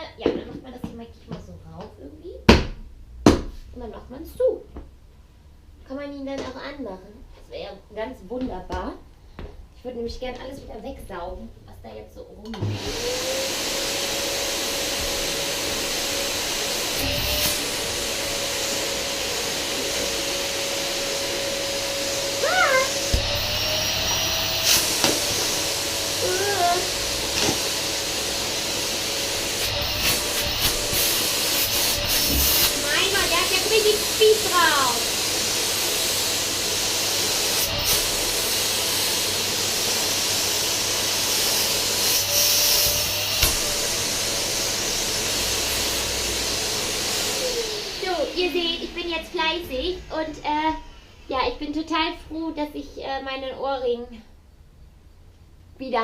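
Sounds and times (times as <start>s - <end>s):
vacuum cleaner running: 12.5s - 51.2s.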